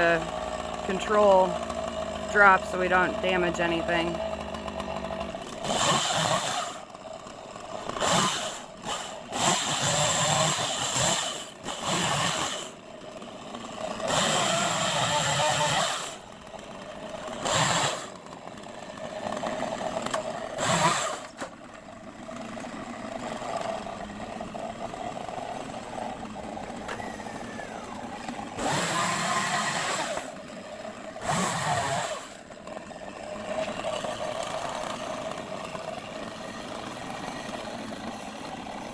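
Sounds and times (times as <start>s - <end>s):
chainsaw idling and revving: 0.0s - 38.9s.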